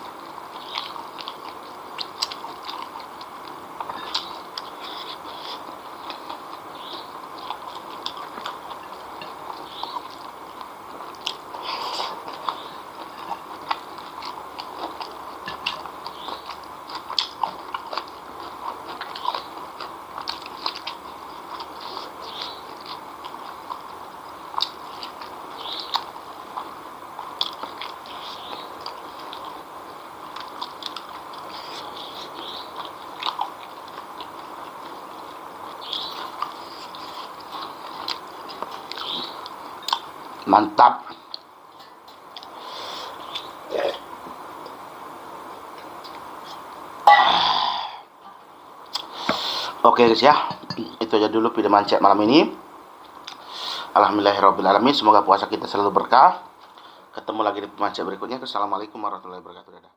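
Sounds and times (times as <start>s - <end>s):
wet chewing with crunches: 0.0s - 44.8s, 48.8s - 49.8s.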